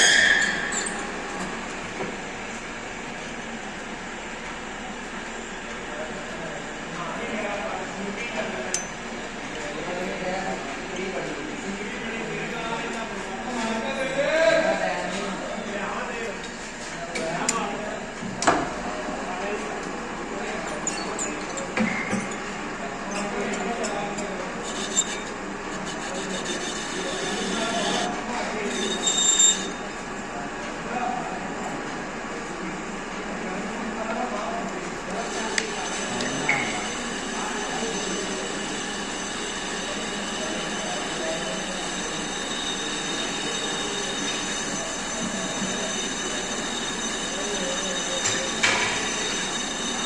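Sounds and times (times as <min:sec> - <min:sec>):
metal lathe running: 0:22.4 - 0:30.3, 0:34.8 - 0:50.0
machine humming: 0:24.4 - 0:30.2, 0:34.9 - 0:50.0
high whining tones: 0:24.6 - 0:29.9, 0:35.1 - 0:50.0.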